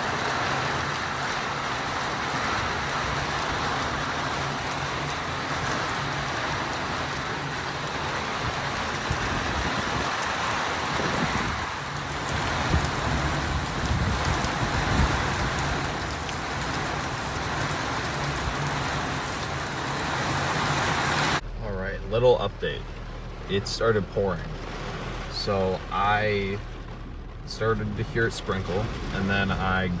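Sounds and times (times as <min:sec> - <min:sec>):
heavy rain pouring: 0:00.0 - 0:30.0
gusty low rumble: 0:02.6 - 0:30.0.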